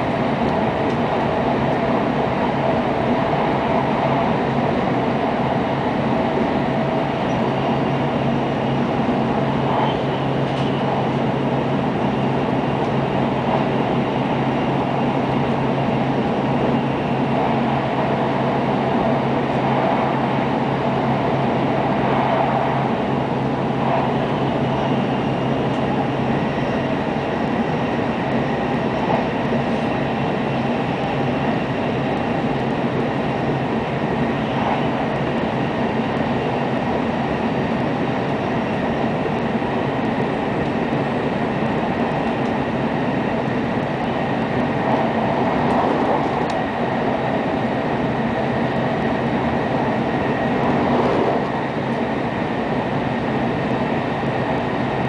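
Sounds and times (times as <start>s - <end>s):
train interior rumble and hiss: 0.0s - 55.0s.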